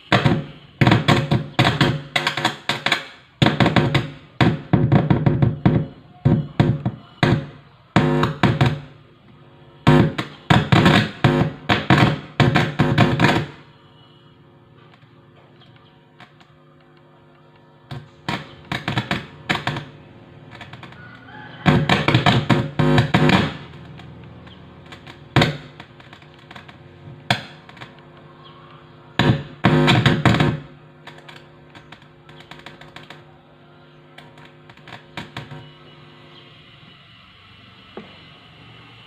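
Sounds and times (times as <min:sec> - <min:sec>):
loud buzzing and crackling: 0:00.0 - 0:33.4, 0:34.0 - 0:37.0
amplifier hum: 0:00.0 - 0:39.0.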